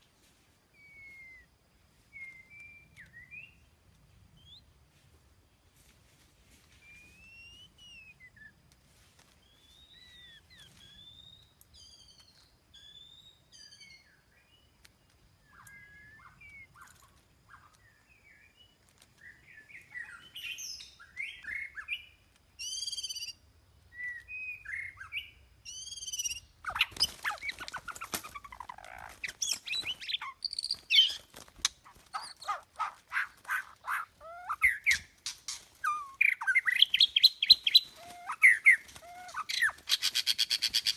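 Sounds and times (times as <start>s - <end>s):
birds chirping and calling: 9.5s - 14.7s, 15.4s - 23.4s, 24.0s - 40.9s.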